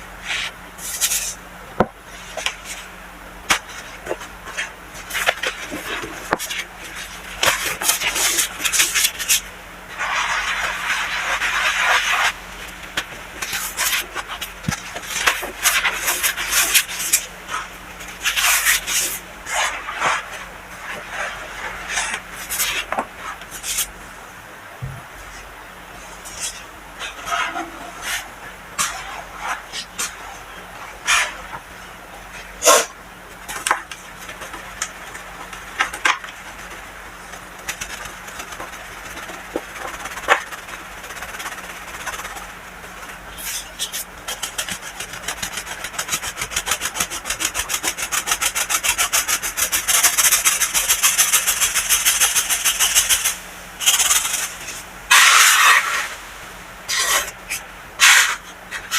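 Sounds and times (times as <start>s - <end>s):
baking soda crushed and scraped: 4.5s - 12.4s, 32.6s - 56.2s.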